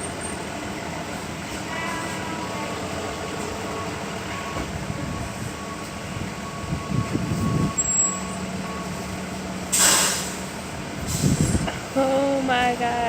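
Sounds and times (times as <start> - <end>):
traffic rumble: 0.0 - 13.0
short loud hiss: 9.7 - 10.4.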